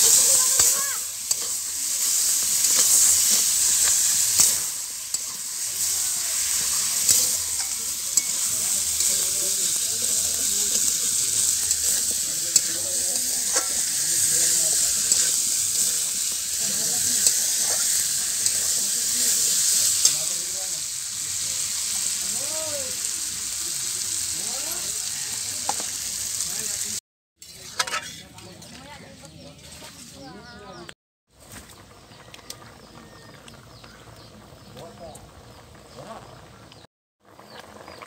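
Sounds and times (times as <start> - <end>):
metal spatula scraping a pan: 0.0 - 20.4, 27.4 - 30.3
curry sizzling in a metal pan: 0.0 - 30.6, 31.4 - 38.0.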